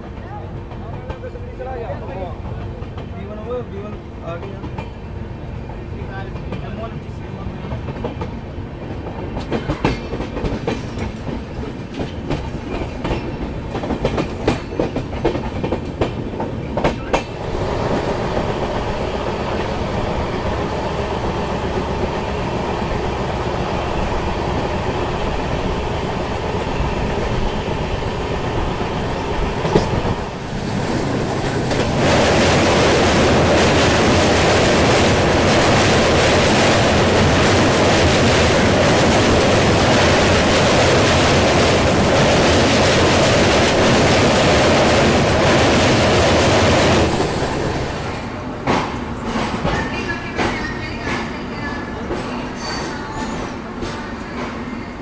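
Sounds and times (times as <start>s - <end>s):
train rumble: 0.0s - 55.0s
train wheels clicking over rail joints: 7.7s - 22.1s, 25.4s - 54.8s.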